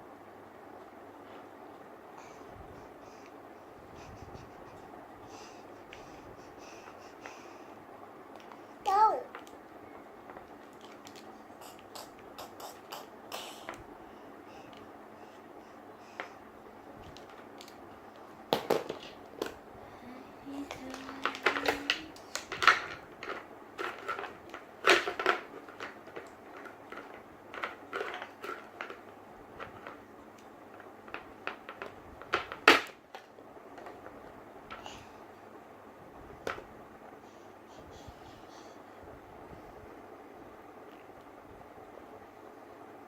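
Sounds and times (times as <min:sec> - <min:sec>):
faint hum: 0:00.0 - 0:43.0
plastic toys clicking and tapping: 0:20.7 - 0:29.0.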